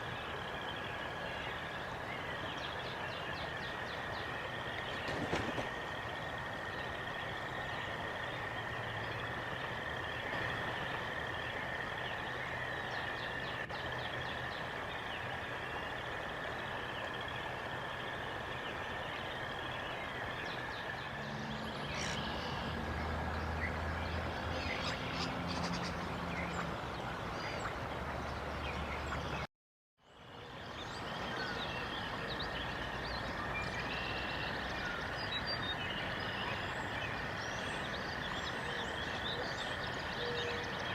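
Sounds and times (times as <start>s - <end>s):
low engine hum: 3.6s - 29.4s.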